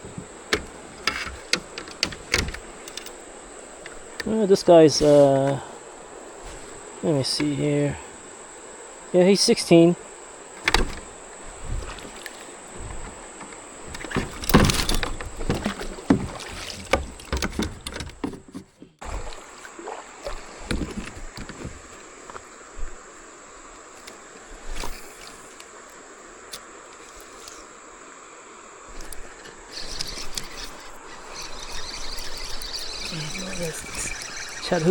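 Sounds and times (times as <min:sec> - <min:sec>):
knocks and clunks in a kayak: 0:00.0 - 0:03.2, 0:10.6 - 0:23.1
high-pitched insect drone: 0:00.0 - 0:18.1, 0:19.1 - 0:34.9
water splashes: 0:02.4 - 0:17.9, 0:19.0 - 0:25.9, 0:28.9 - 0:34.9.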